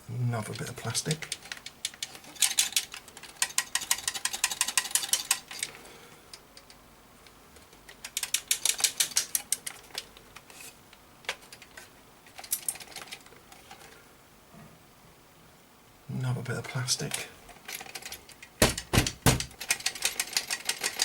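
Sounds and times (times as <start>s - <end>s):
plastic bits rattling in a case: 17.6s - 21.0s.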